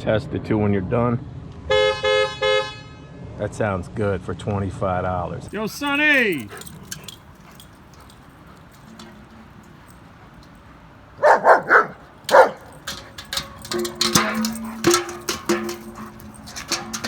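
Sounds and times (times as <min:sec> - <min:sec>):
clicks and rattles: 0:05.5 - 0:17.0
dog barking: 0:05.6 - 0:10.4, 0:11.2 - 0:13.4.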